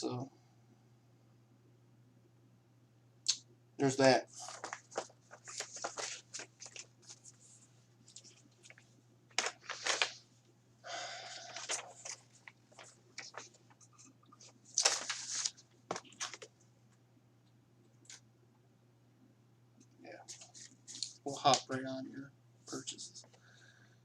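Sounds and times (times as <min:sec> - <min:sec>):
faint low hum: 0:00.0 - 0:24.0
paper rustling and crinkling: 0:04.3 - 0:10.3, 0:11.2 - 0:16.6, 0:20.3 - 0:21.7.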